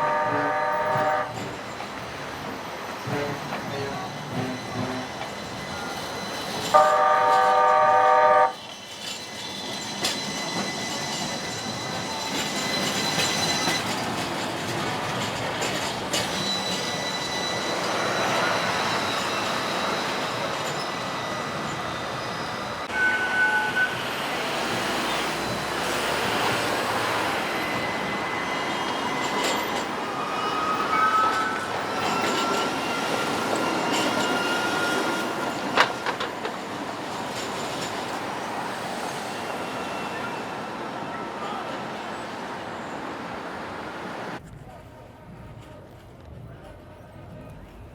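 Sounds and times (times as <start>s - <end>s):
streetcar horn: 0.0s - 1.5s, 6.7s - 8.6s, 22.8s - 24.5s
streetcar rolling: 0.0s - 47.9s
wheel squeal: 1.3s - 7.5s, 8.6s - 43.0s.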